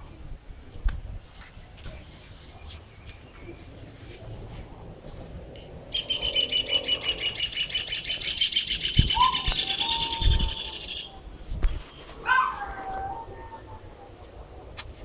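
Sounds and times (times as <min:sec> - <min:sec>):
bird chirping trill: 0:05.9 - 0:11.2.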